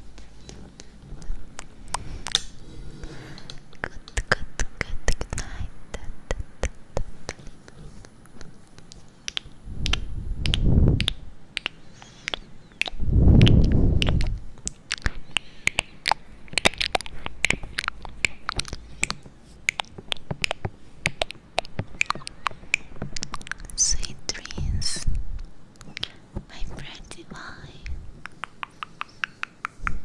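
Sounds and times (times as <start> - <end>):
low rushing swells: 2.0 - 4.0
sharp clicks and taps: 8.3 - 24.7.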